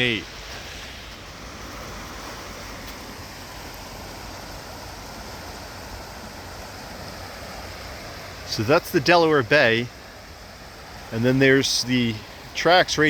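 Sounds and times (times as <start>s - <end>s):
small waves on shore: 0.0s - 13.0s
wind: 0.0s - 13.0s.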